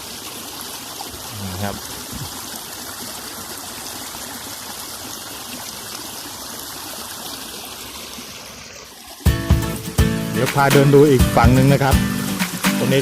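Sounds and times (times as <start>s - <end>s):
water trickling: 0.0s - 10.0s.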